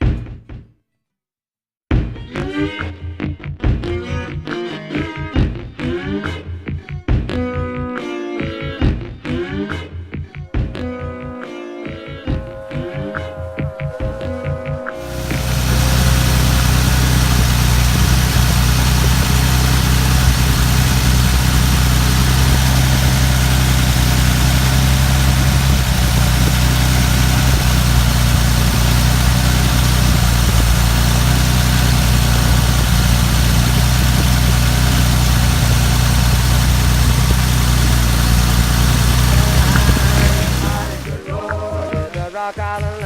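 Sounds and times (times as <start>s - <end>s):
truck engine idling: 15.0s - 41.2s.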